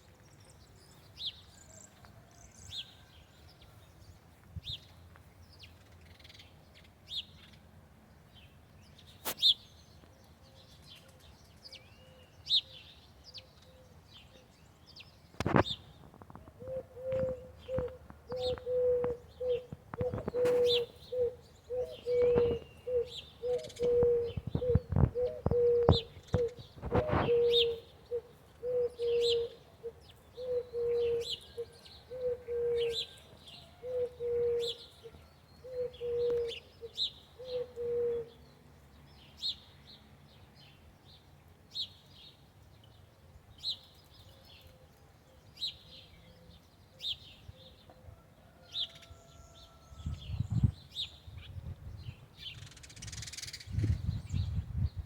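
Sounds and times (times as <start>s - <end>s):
bird hooting: 16.6s - 38.4s.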